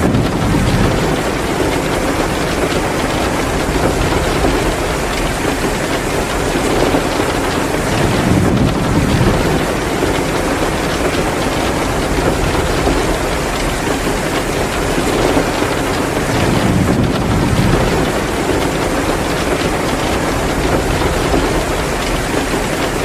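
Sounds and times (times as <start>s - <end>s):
heavy rain pouring: 0.0s - 23.0s
low rumble: 7.9s - 9.9s.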